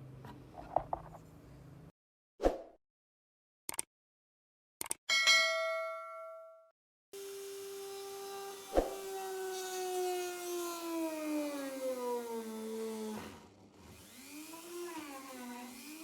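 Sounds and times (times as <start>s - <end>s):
power tool motor running: 7.2s - 16.0s.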